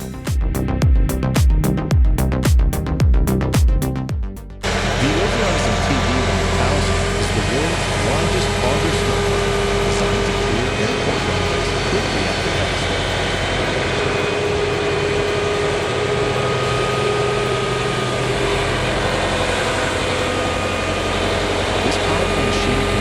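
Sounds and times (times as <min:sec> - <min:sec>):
steady tones: 0:00.0 - 0:23.0
heavy machinery engine running: 0:04.6 - 0:23.0.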